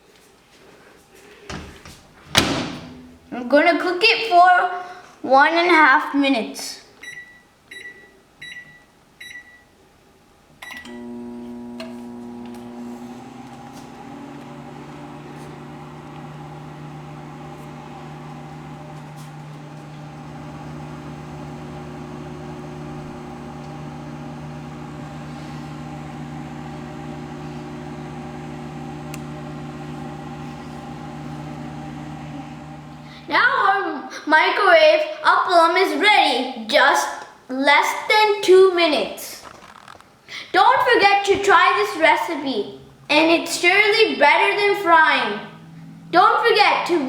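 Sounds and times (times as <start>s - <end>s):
microwave keypad beeping: 7.0s - 9.7s
microwave oven humming: 10.6s - 33.3s, 44.4s - 47.0s.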